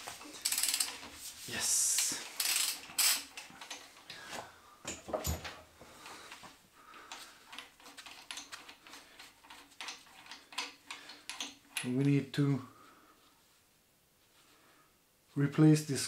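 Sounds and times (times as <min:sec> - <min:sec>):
hand tools clicking and knocking: 0:01.9 - 0:04.2, 0:04.8 - 0:05.7, 0:07.0 - 0:12.2.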